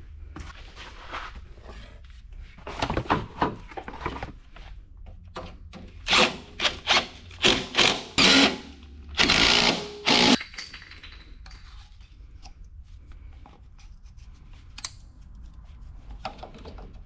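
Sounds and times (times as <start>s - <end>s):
loud clattering tool bursts: 7.4s - 10.4s.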